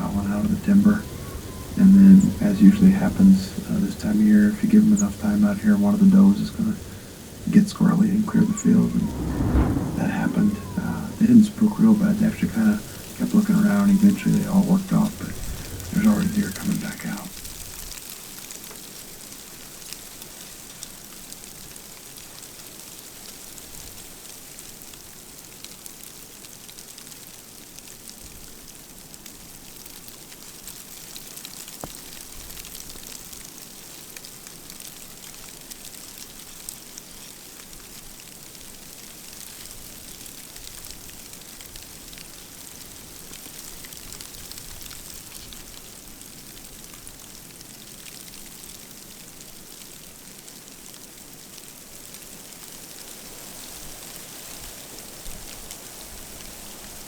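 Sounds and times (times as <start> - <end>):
snow pattering on a blind: 0.0 - 17.9.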